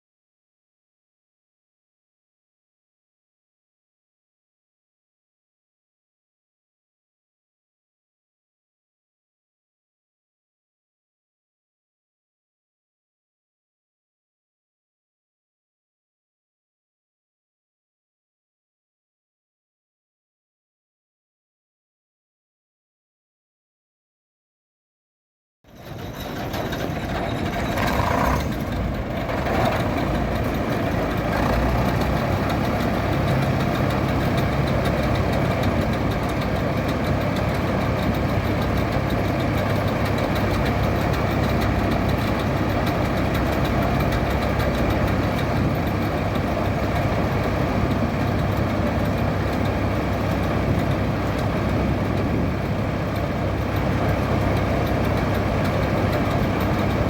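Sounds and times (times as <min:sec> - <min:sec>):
combine harvester running: 0:25.7 - 0:57.0.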